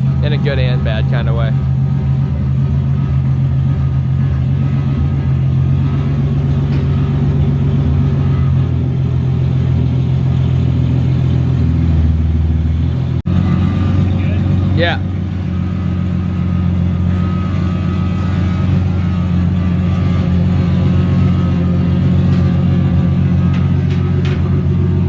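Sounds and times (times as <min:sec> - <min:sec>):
loud raw car engine idling: 0:00.0 - 0:25.0.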